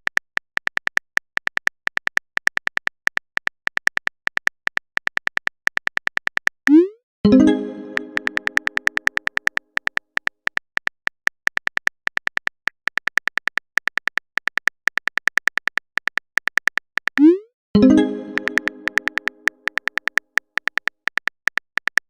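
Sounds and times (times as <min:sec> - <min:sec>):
electronic typing clicks: 0:00.0 - 0:22.0
plucked notification chime: 0:06.7 - 0:08.7, 0:17.8 - 0:19.4.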